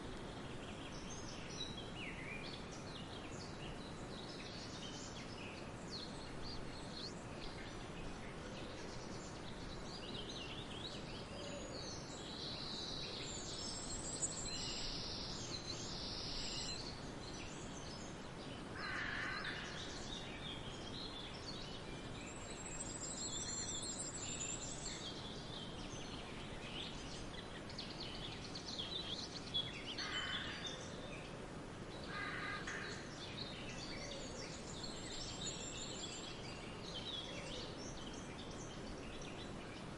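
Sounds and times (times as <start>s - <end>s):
birds chirping and trilling: 0.0s - 39.9s
steady background hiss: 0.0s - 39.9s.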